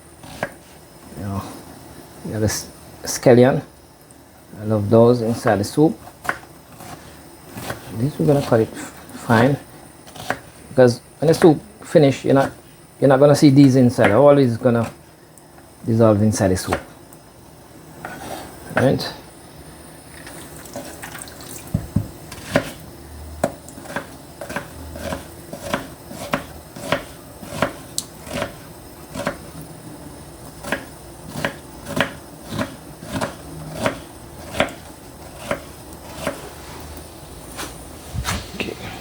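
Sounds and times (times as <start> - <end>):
knife chopping on cutting board: 0.2 - 0.6, 6.2 - 8.5, 10.1 - 10.4, 21.7 - 22.8, 23.4 - 29.5, 30.6 - 36.4.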